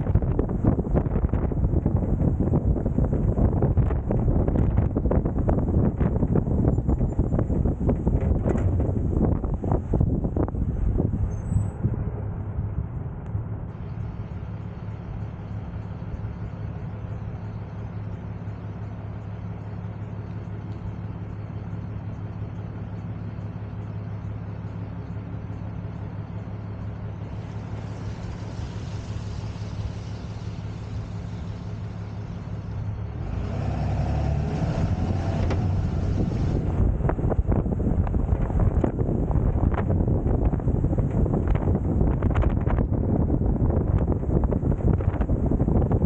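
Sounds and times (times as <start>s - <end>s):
truck engine humming: 0.0s - 46.0s
wind and road noise: 0.0s - 46.0s.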